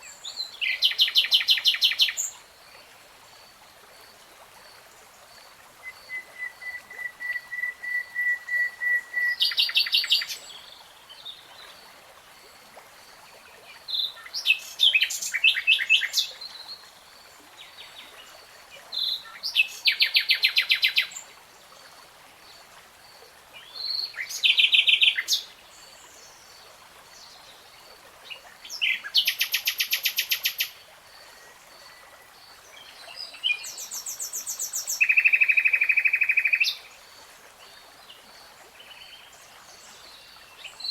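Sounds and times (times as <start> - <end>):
faint steady hiss: 0.0 - 40.9
songbird singing: 5.8 - 11.4, 28.2 - 36.9.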